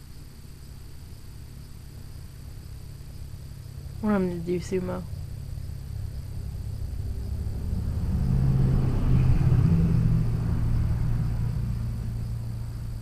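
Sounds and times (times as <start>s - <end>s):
vehicle passing by: 5.9s - 13.0s.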